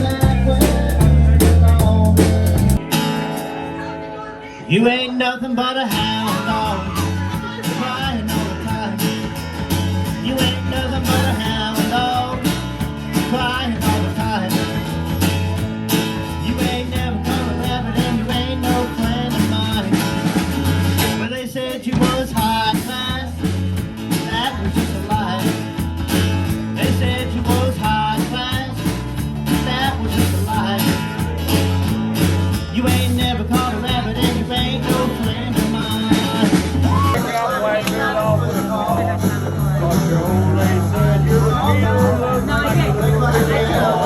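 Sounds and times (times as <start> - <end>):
pulsing bass line: 0.0 - 3.1, 6.2 - 21.2, 22.4 - 44.0
steady drumbeat: 0.0 - 3.5, 6.0 - 44.0
live band playing: 0.0 - 5.0, 5.8 - 44.0
bending guitar line: 0.0 - 44.0.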